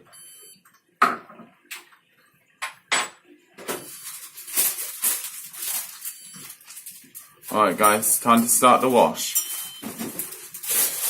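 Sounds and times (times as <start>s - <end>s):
rustling and clatter: 3.7s - 8.1s, 9.4s - 11.0s.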